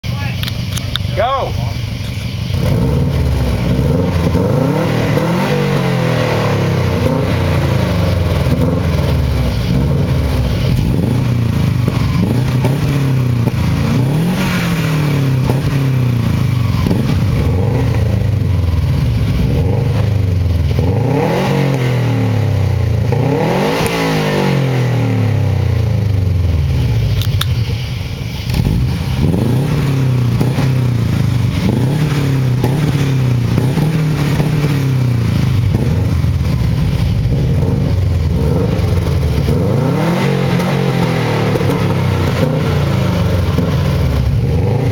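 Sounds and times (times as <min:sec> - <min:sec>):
car engines revving: 0:00.0 - 0:44.9.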